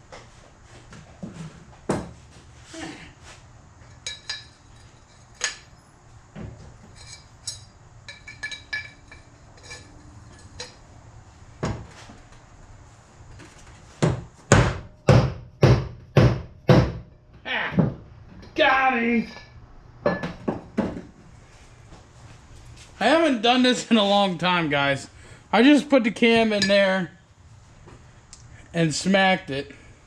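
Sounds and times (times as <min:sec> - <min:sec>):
metallic clinks of tools: 0:07.0 - 0:10.8.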